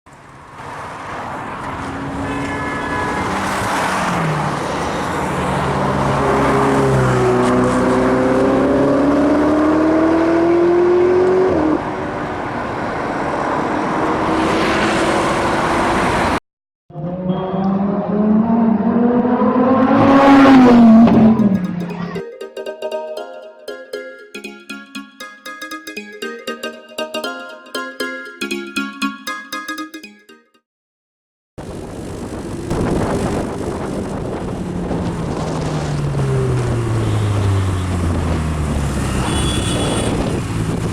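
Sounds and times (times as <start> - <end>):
supercar engines accelerating: 0.6 - 16.4, 17.0 - 22.2, 33.1 - 39.6.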